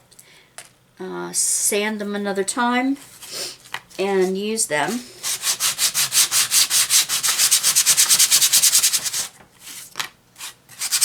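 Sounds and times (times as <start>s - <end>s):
sandpaper rubbing on wood: 4.8s - 9.3s, 10.8s - 11.0s.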